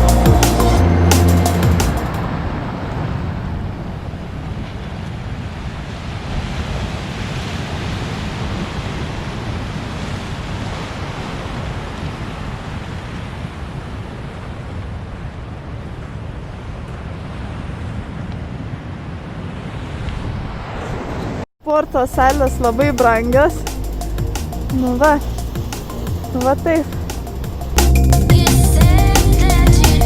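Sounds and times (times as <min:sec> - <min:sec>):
electronic music: 0:00.0 - 0:02.2, 0:22.0 - 0:30.0
ocean surf on beach: 0:00.0 - 0:29.5.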